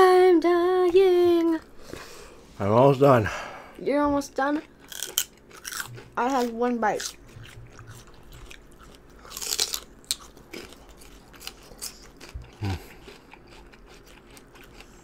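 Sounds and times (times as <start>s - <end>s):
chewing and crunching food: 4.1s - 15.0s.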